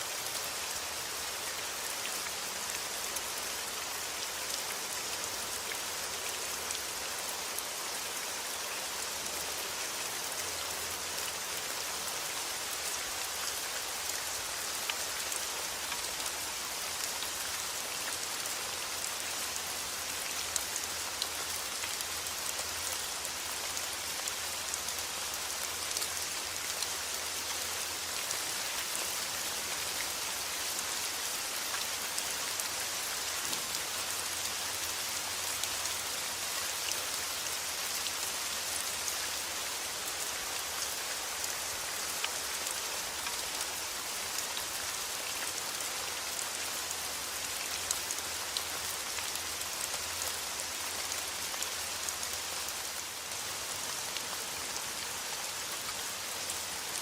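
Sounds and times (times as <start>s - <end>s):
rain falling: 0.0s - 57.0s
raindrops ticking on a surface: 8.7s - 39.8s.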